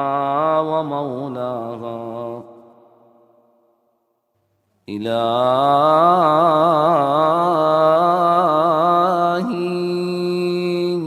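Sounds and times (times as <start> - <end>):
man chanting melodically: 0.0 - 2.6.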